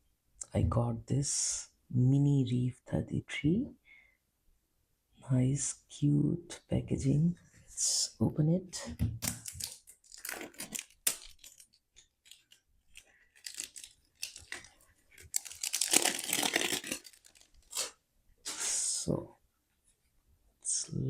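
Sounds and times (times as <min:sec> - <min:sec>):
packaging rustling and clicking: 0:09.2 - 0:18.0
packaging tearing: 0:09.3 - 0:18.0.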